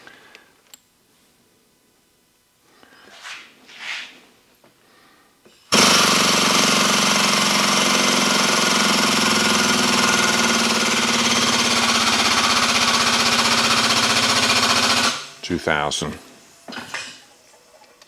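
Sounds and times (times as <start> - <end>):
hydraulic pump rattling: 5.7 - 15.5.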